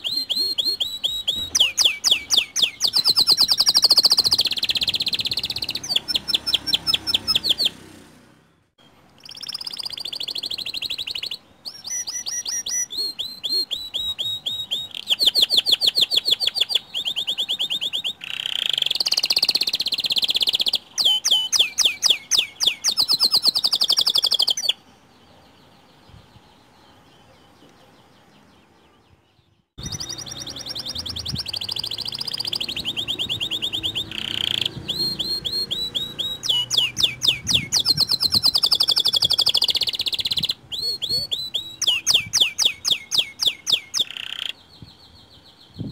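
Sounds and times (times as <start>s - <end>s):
canary singing trills: 0.0s - 8.1s, 8.8s - 45.9s.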